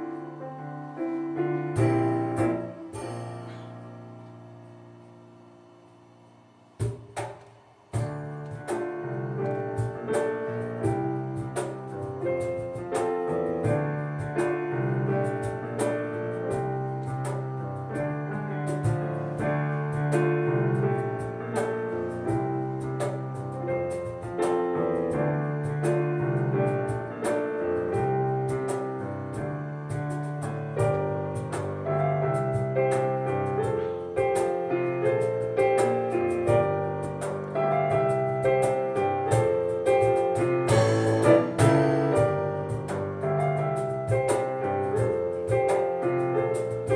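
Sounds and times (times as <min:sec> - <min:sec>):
piano melody over chords: 0:00.0 - 0:05.5, 0:08.0 - 0:46.9
cajon slaps: 0:01.8 - 0:03.7, 0:06.8 - 0:46.9.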